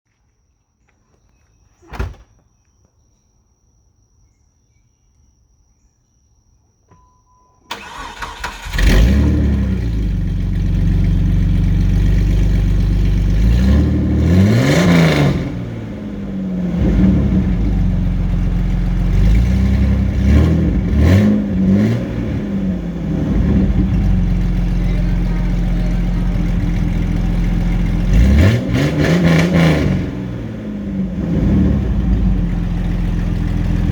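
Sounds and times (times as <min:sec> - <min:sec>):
starter cranking: 0:07.7 - 0:09.2
engine revving: 0:07.7 - 0:33.9.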